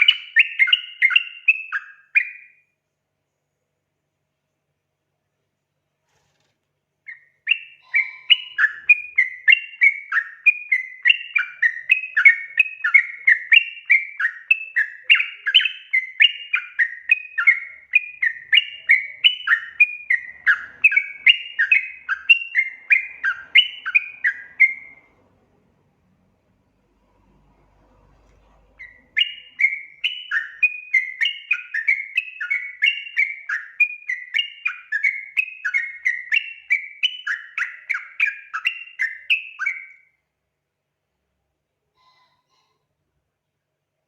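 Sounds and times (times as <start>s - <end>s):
bird singing bubbly notes: 7.1s - 25.1s, 28.8s - 40.0s.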